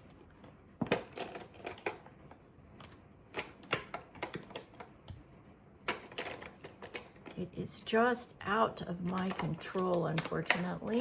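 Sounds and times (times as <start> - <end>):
makeup tools clicking and tapping: 9.0 - 11.0.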